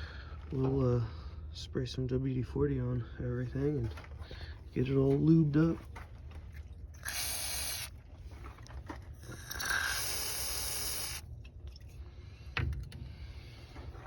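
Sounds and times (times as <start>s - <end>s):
aerosol can spraying: 7.0s - 7.9s, 9.3s - 11.2s.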